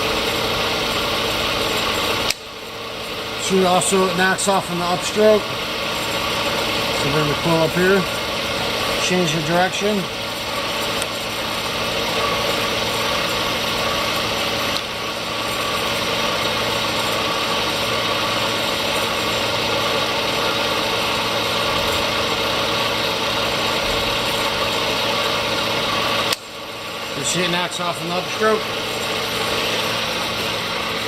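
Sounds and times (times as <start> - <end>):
milling machine motor hum: 0.0 - 31.0.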